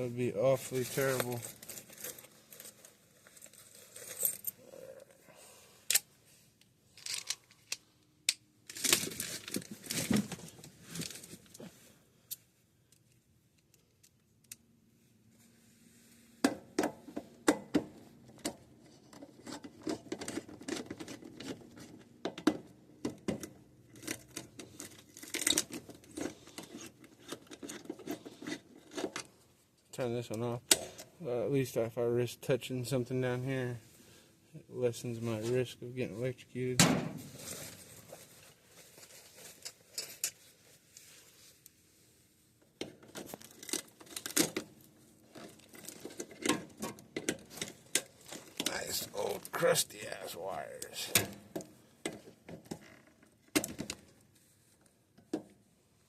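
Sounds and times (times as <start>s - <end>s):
rustling: 0.6s - 5.6s, 37.2s - 42.2s
clicks of tools and parts: 5.8s - 10.0s.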